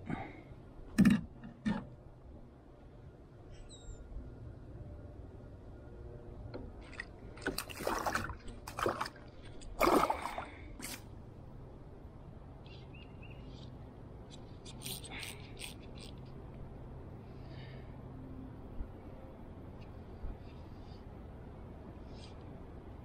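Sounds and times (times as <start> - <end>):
low rumble of wind: 0.0 - 23.0
water splashing and dripping: 6.8 - 11.0.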